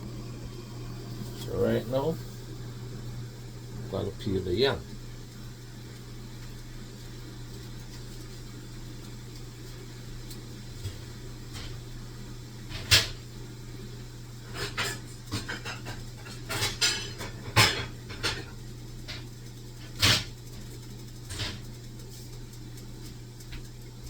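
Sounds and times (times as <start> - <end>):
steady low hum: 0.0 - 24.0
utensils and cookware clacking: 14.5 - 18.5.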